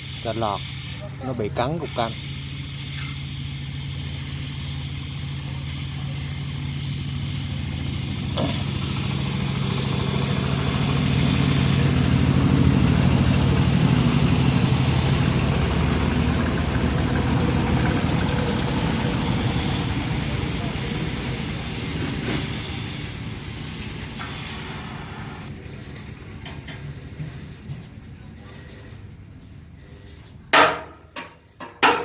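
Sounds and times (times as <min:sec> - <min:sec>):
steady hiss: 0:00.0 - 0:16.4, 0:18.3 - 0:25.5
vehicle engine running: 0:01.0 - 0:30.3.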